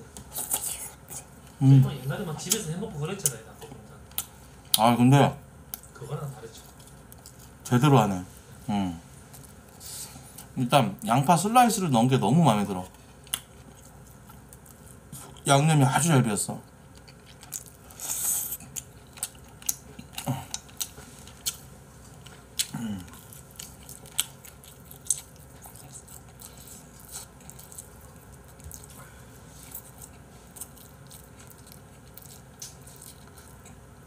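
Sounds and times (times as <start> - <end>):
person chewing food: 12.9 - 15.4, 16.7 - 34.0.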